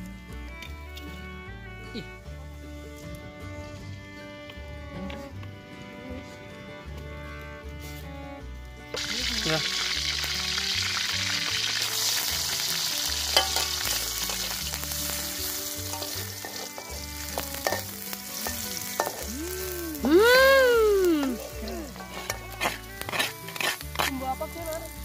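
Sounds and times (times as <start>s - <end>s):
shallots sizzling in oil: 7.8s - 25.0s
metal spatula scraping a wok: 11.7s - 19.3s, 21.4s - 25.0s.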